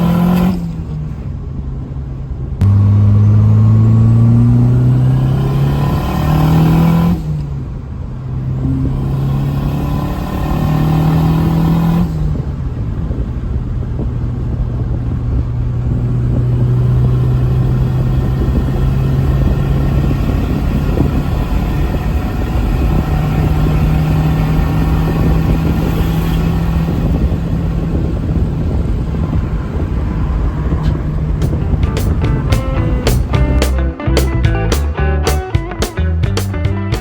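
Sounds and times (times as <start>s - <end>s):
turbocharged car engine running: 2.6s - 8.0s, 16.0s - 34.8s.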